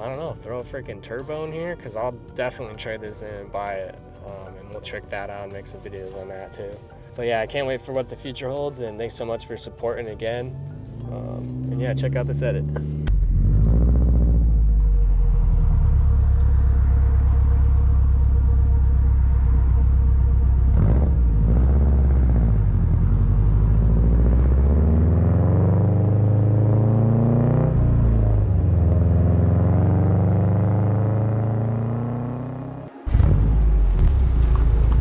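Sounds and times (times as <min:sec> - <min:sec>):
car engine exhaust revving: 0:10.6 - 0:35.0.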